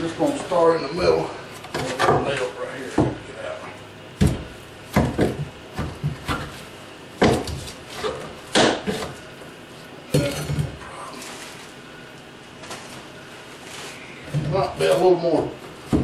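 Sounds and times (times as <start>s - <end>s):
wooden shelving knocks and clatters: 4.2s - 6.6s, 7.2s - 9.2s, 14.3s - 16.0s.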